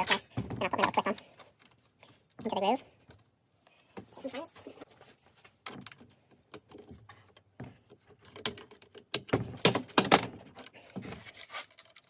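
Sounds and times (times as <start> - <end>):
saw parts clicking and clattering: 5.7 - 12.0.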